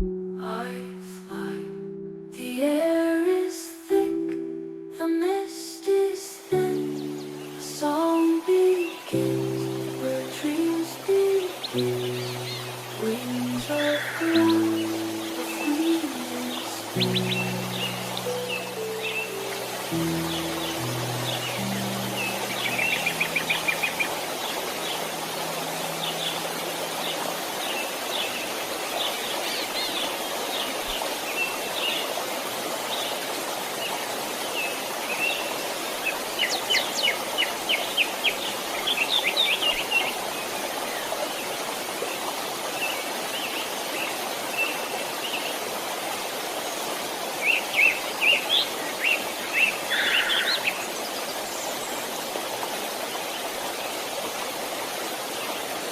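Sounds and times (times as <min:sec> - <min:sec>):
water flowing: 0:00.0 - 0:55.9
small birds chirping: 0:06.7 - 0:32.2.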